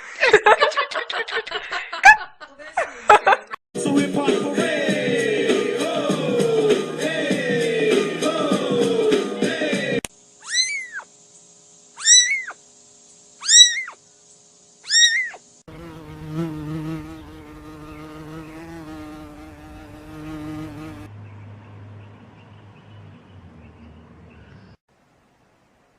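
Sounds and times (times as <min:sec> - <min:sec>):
kitten meowing: 0:10.4 - 0:11.1, 0:12.0 - 0:12.6, 0:13.4 - 0:14.0, 0:14.8 - 0:15.4.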